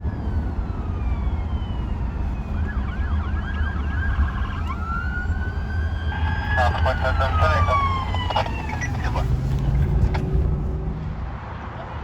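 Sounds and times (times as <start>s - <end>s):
siren wailing and yelping: 2.6s - 10.4s.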